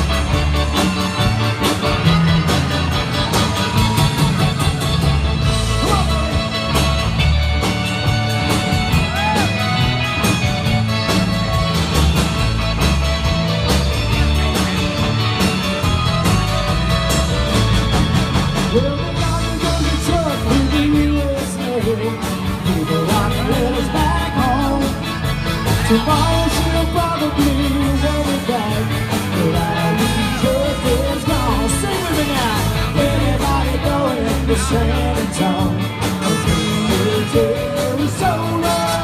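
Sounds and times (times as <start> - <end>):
button accordion: 0.0 - 21.3
live band playing: 0.0 - 39.0.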